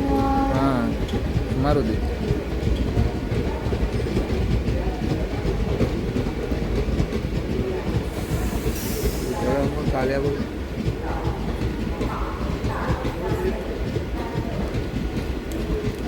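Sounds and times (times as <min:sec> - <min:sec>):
train wheels clattering over rail joints: 0:00.1 - 0:16.0.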